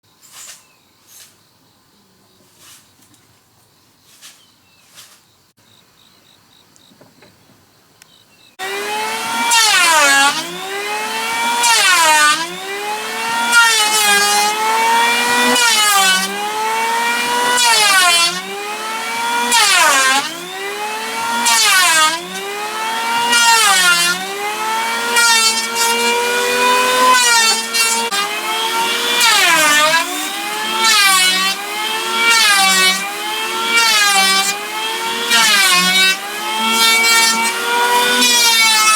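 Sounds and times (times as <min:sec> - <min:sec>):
power planer cutting wood: 0:08.6 - 0:38.9.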